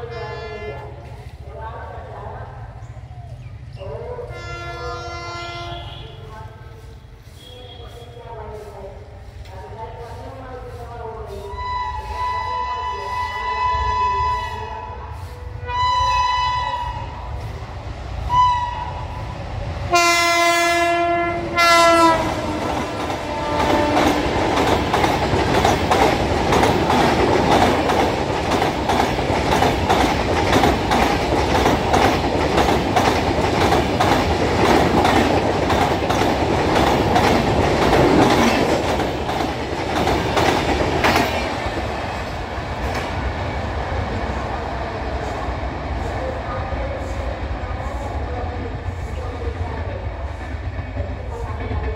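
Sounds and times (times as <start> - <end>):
train horn blasts: 0.0 - 1.1, 4.3 - 6.4, 7.4 - 8.3, 11.5 - 17.2, 19.9 - 24.3
train passing at speed: 0.0 - 51.9
wheels clickety-clack over rail joints: 21.5 - 46.3.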